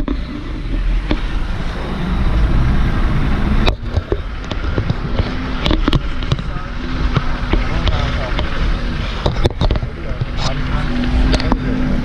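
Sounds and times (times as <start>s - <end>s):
vehicle engine and road rumble: 0.0s - 12.0s
knocks and rattles: 3.4s - 11.6s.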